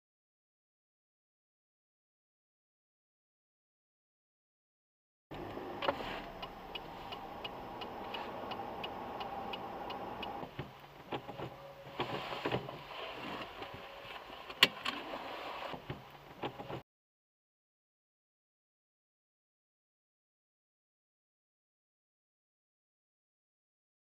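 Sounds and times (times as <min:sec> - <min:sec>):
turn signal ticking: 0:05.3 - 0:15.0
car interior running noise: 0:05.3 - 0:16.8
scattered clicks: 0:05.4 - 0:11.5.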